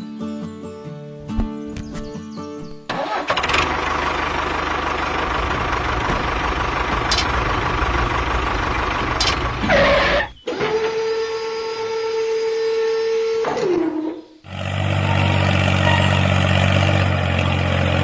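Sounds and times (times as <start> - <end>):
motor rumbling: 2.6 - 13.5.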